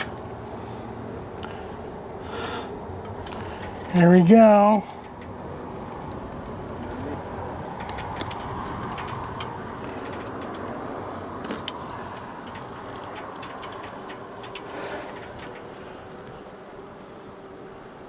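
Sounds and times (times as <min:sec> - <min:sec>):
honey bees buzzing: 0:00.0 - 0:08.2, 0:10.6 - 0:18.0
small clicks and taps: 0:07.7 - 0:10.7.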